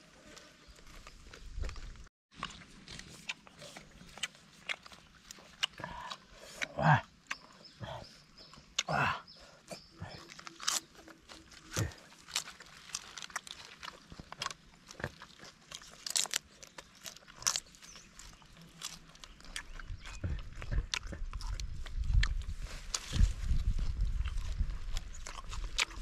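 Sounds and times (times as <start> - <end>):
wet chewing with crisp crunches: 0.2 - 26.0.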